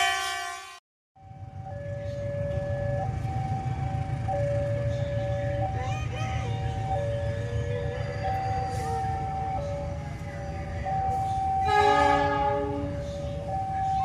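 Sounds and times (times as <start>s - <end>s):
locomotive horn blast: 0.0s - 0.8s, 11.6s - 13.0s
level-crossing alarm two tones: 1.2s - 14.0s
train rumble: 1.2s - 14.0s.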